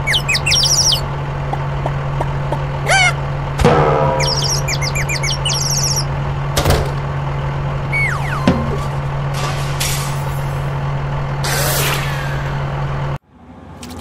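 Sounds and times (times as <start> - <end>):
birds chirping: 0.0 - 9.3
steady low hum: 0.0 - 13.6.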